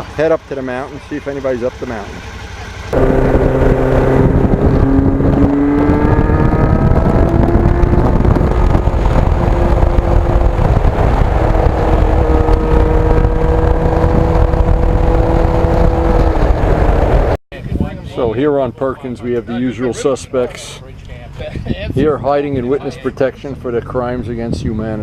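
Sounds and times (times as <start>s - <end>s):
motorcycle engine while riding: 1.4s - 17.4s.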